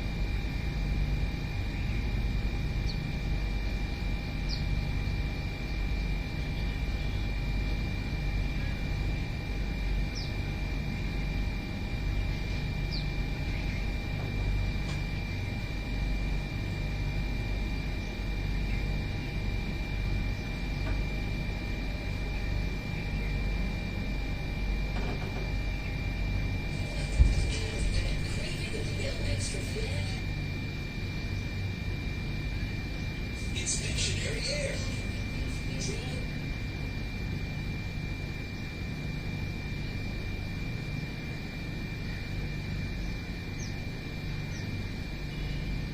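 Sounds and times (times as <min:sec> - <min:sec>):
high-pitched hum: 0:00.0 - 0:45.9
faint bird chirps: 0:04.2 - 0:04.7, 0:10.1 - 0:10.4.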